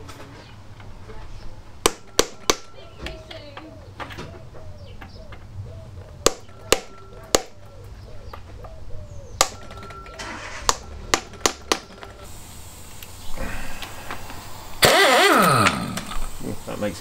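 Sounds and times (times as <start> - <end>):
hammer striking metal: 6.2 - 7.7.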